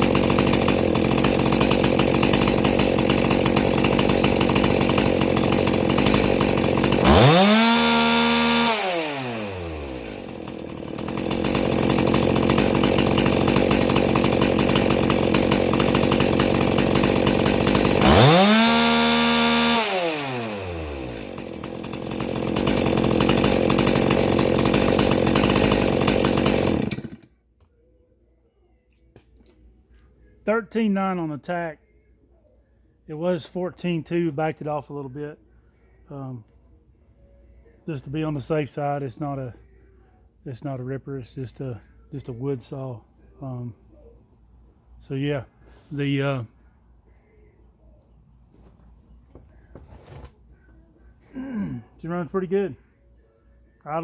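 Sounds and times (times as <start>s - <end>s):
chainsaw engine revving: 0.0s - 27.3s, 51.3s - 52.8s.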